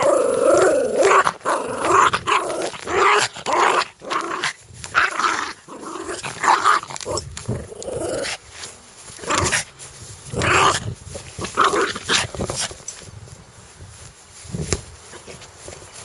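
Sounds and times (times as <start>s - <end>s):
dog growling and snarling: 0.0s - 8.6s, 9.2s - 9.7s, 10.3s - 12.8s.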